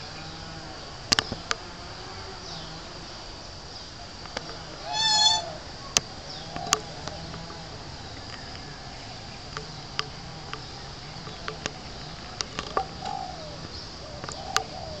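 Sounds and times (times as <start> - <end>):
soft warbling bird calls: 4.8 - 6.8.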